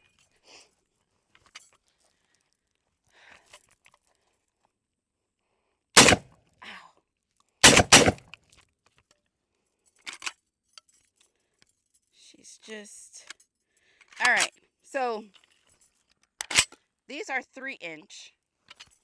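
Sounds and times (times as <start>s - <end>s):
shotgun shots: 6.0s - 6.2s, 7.6s - 8.2s.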